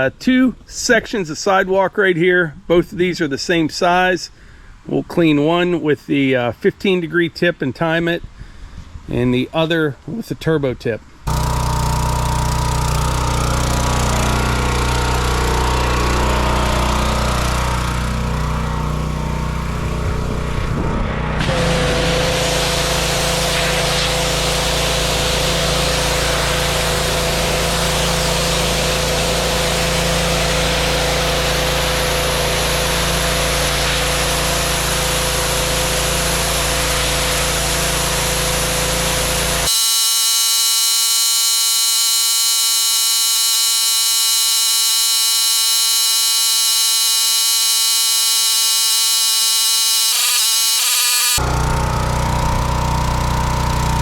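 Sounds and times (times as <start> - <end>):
buzzing alarm-like tone: 11.3 - 20.8, 22.2 - 34.0, 39.6 - 53.8
pressure washer engine: 11.3 - 54.0.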